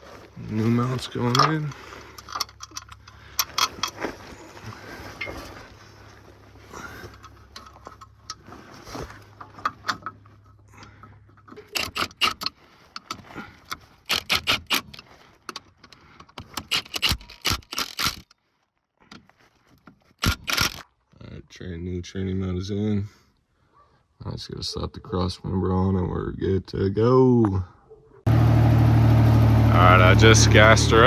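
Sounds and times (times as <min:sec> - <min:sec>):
metal tools clinking: 0:00.2 - 0:12.5.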